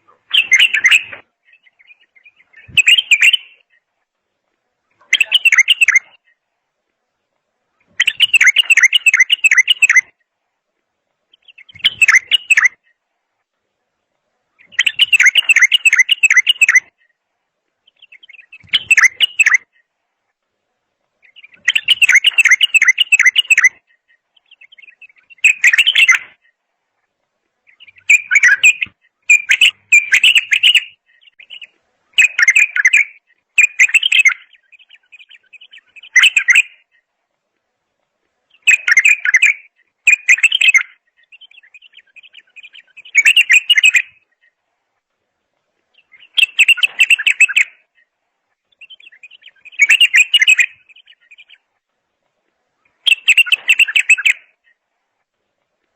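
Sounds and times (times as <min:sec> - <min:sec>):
songbird warbling: 0:00.0 - 0:04.0, 0:04.8 - 0:06.4, 0:07.8 - 0:10.2, 0:11.3 - 0:13.0, 0:14.5 - 0:17.2, 0:17.8 - 0:19.9, 0:21.2 - 0:26.6, 0:27.7 - 0:37.1, 0:38.5 - 0:44.6, 0:45.9 - 0:51.7, 0:52.8 - 0:54.8.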